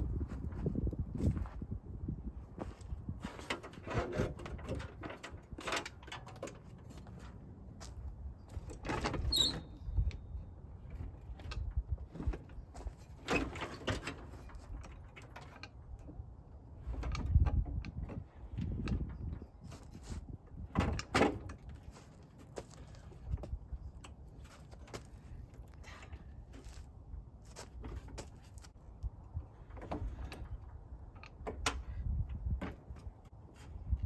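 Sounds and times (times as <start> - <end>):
metallic clunks and scrapes: 3.2 - 7.4
brief squeak: 9.2 - 10.3.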